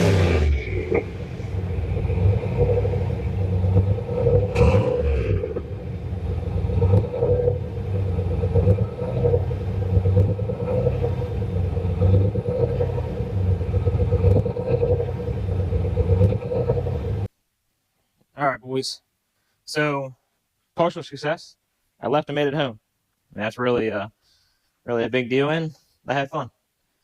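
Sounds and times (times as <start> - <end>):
car engine rumbling: 0.0 - 17.3.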